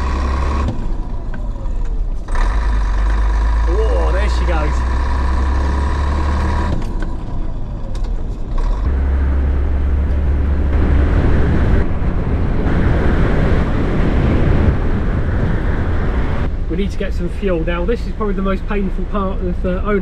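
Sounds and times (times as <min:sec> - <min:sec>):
lorry diesel engine rumble: 0:00.0 - 0:20.0
road noise: 0:00.0 - 0:20.0.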